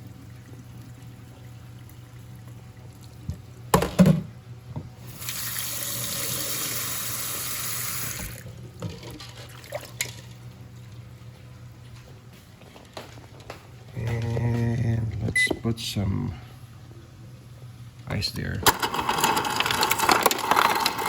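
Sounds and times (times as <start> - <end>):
water running into sink: 5.1 - 10.4.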